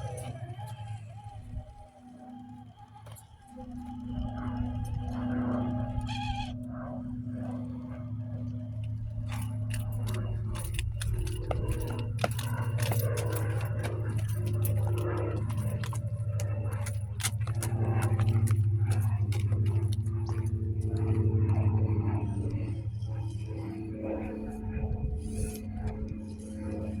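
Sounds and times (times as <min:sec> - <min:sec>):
rc truck motor hum: 0:00.0 - 0:23.4
clicks and crunches on rough ground: 0:09.1 - 0:21.6.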